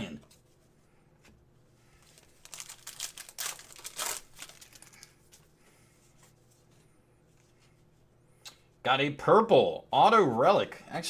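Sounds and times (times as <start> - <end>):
wrapper crinkling and tearing: 2.0 - 5.4.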